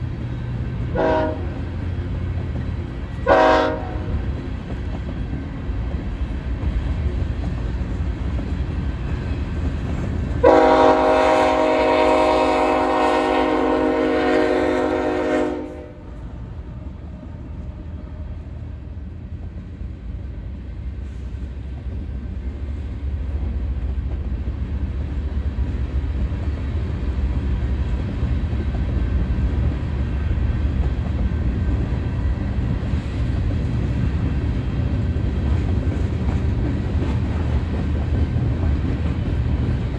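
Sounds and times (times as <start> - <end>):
train rumbling on rails: 0.0 - 39.9
train horn blast: 0.9 - 1.7, 3.2 - 4.2, 10.4 - 16.2.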